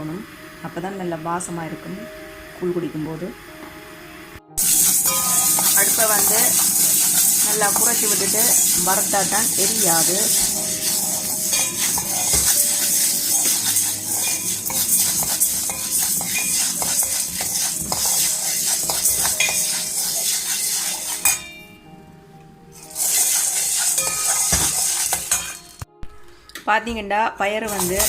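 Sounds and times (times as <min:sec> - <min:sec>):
spoon scraping beans in metal pan: 0:04.6 - 0:21.6, 0:22.8 - 0:25.8, 0:27.6 - 0:28.0.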